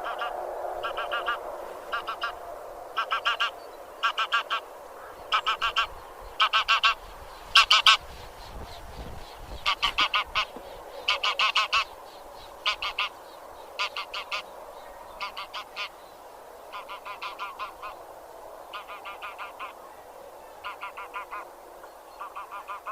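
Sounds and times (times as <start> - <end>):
geese honking: 0.0 - 2.4, 3.0 - 8.0, 9.6 - 11.9, 12.6 - 13.2, 13.8 - 14.5, 15.1 - 16.0, 16.7 - 18.0, 18.7 - 19.8, 20.6 - 21.5, 22.2 - 22.9.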